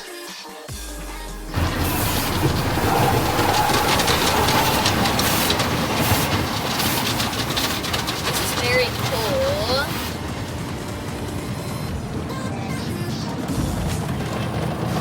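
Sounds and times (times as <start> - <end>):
mechanical rumble and rattling: 1.3 - 15.0
car wash spray: 1.4 - 14.9.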